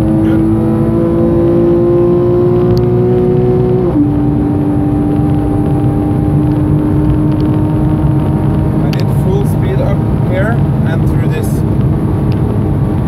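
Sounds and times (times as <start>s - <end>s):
tyre and road noise: 0.0s - 13.0s.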